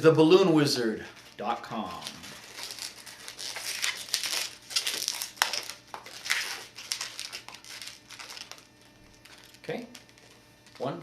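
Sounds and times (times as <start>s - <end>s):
balloons rubbing and rustling: 0.9s - 9.6s.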